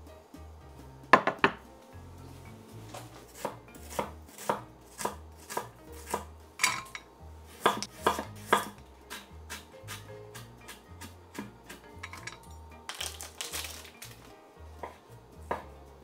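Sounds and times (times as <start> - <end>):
knife chopping on cutting board: 3.3 - 6.3, 7.6 - 11.8.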